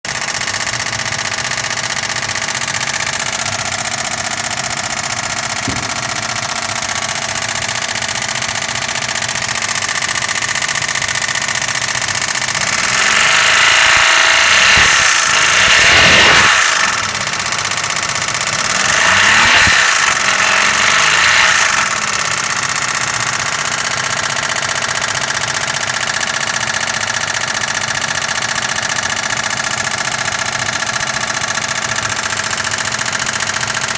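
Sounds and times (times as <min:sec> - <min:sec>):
car engine with abnormal noise: 0:00.1 - 0:33.9
engine revving: 0:05.5 - 0:07.3, 0:12.5 - 0:22.6.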